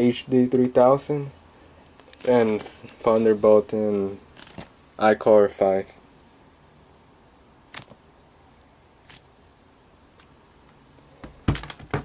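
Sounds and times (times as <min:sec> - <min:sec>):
knocks and clatter of handling: 0:11.2 - 0:12.0.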